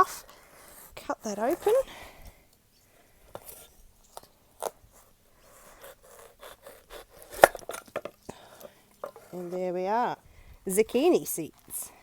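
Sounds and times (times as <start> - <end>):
blade scraping: 5.0 - 8.0
knife cracking through tough rind: 5.7 - 9.4.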